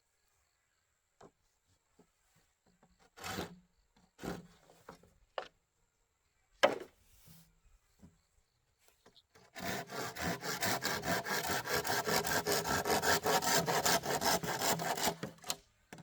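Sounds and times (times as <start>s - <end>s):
bamboo scraping and rubbing: 3.1s - 5.2s, 8.9s - 15.6s
light knocks on bamboo: 6.6s - 7.0s.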